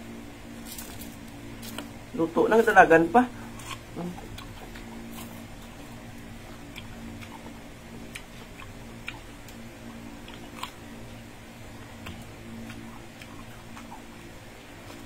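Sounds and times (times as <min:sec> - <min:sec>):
low hum: 0:00.0 - 0:15.0
person chewing food: 0:03.3 - 0:15.0.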